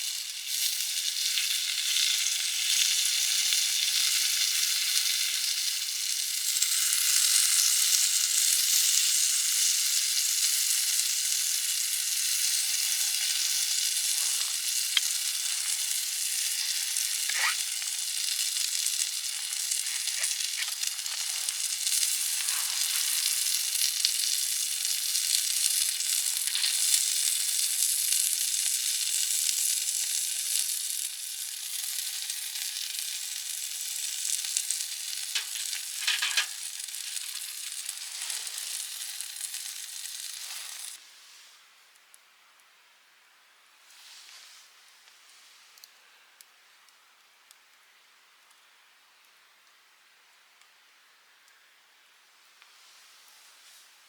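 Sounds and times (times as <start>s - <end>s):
sizzling on a grill: 0.0s - 54.0s
fire crackles and pops: 0.1s - 41.0s.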